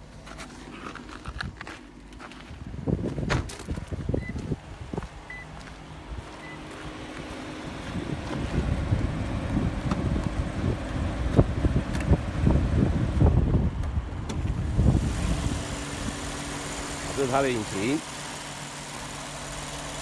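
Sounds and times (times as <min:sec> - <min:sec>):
wind buffeting microphone: 0:02.5 - 0:05.4, 0:07.6 - 0:16.4
short high beeps: 0:05.3 - 0:05.5.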